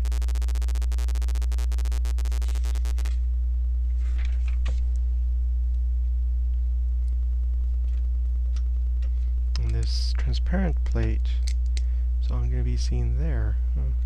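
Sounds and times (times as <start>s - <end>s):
fast electronic pulse: 0.0s - 3.1s
steady low hum: 0.0s - 14.0s.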